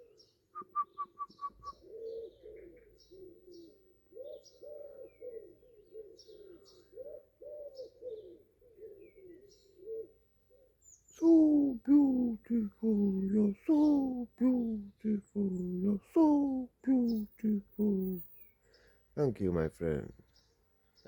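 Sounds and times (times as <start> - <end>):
high bird chirps: 0.0 - 5.3
birds cooing: 0.0 - 19.1.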